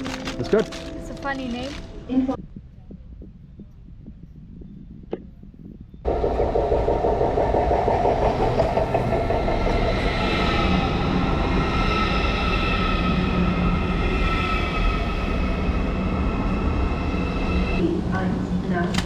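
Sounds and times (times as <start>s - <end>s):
train rumbling on rails: 6.0s - 19.0s.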